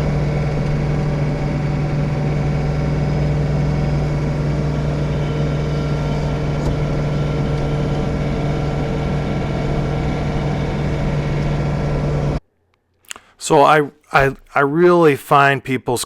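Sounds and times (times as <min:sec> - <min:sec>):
loud steady machine hum: 0:00.0 - 0:12.4.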